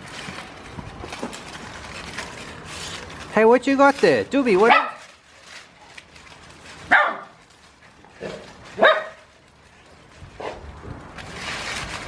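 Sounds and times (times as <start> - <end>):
rustling: 0.0 - 12.0
dog barking: 4.6 - 5.0, 6.9 - 7.3, 8.8 - 9.2.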